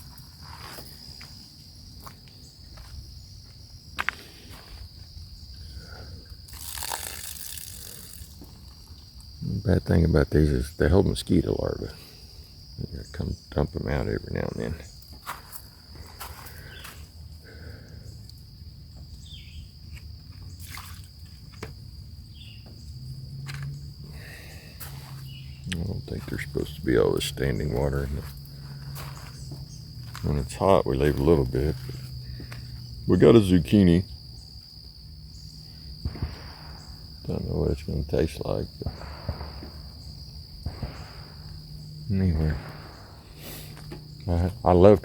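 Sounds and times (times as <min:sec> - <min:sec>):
footsteps walking: 0:00.0 - 0:01.4, 0:02.0 - 0:05.1, 0:15.1 - 0:17.0, 0:28.0 - 0:30.3, 0:43.5 - 0:44.1
crickets droning: 0:00.0 - 0:45.0
low hum: 0:38.8 - 0:45.0.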